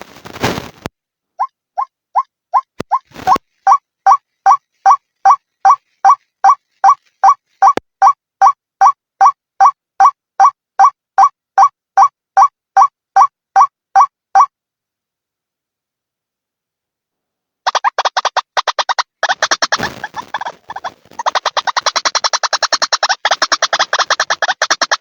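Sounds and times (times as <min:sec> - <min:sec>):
waterhen calling: 0:01.8 - 0:07.8, 0:17.7 - 0:25.0.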